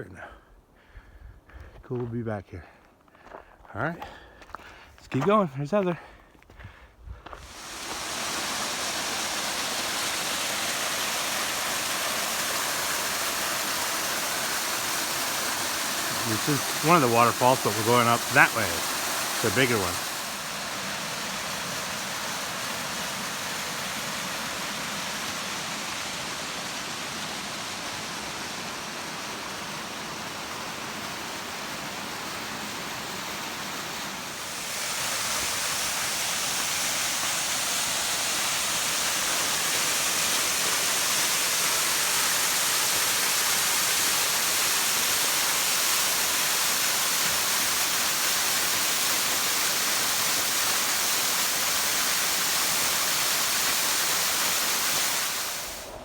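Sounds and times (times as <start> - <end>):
waterfall pouring: 7.4 - 56.0.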